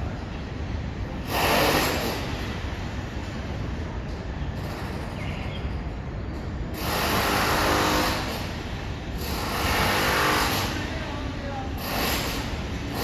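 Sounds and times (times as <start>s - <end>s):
power tool noise: 6.8s - 8.6s, 9.2s - 10.9s.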